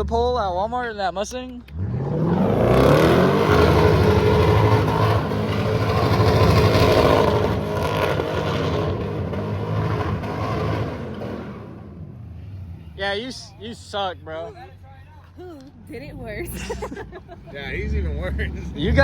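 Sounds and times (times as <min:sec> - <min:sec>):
car engine revving hard: 0:01.7 - 0:12.0, 0:17.6 - 0:19.0.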